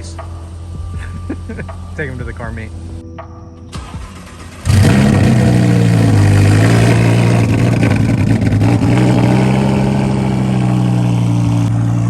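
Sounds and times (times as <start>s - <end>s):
loud car engine and exhaust: 4.2s - 12.0s.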